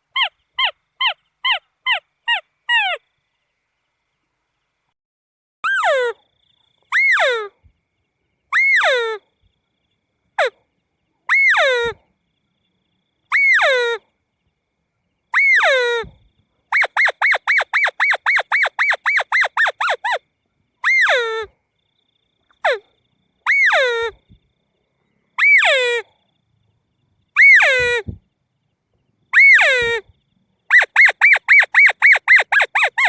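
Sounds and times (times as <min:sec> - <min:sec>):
crake calls: 0:29.3 - 0:33.0.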